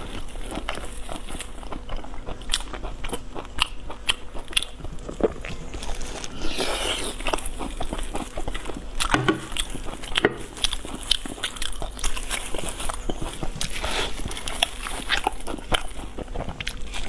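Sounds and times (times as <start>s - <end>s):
wet chewing and lip smacking: 0.0s - 17.0s.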